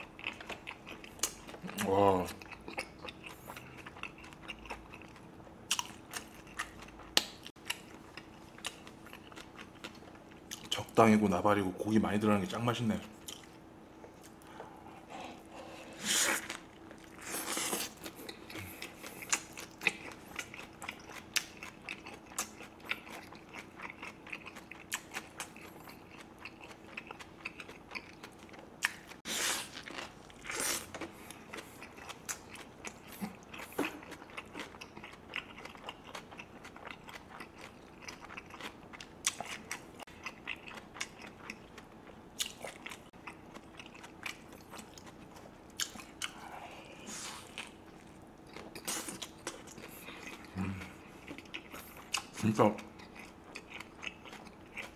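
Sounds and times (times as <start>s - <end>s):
crunchy wet chewing: 0.0s - 10.8s, 16.0s - 54.9s.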